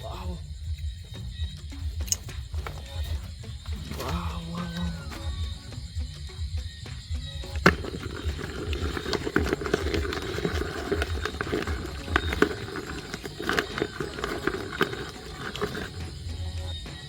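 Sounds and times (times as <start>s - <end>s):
irregular rustling: 7.5s - 16.5s.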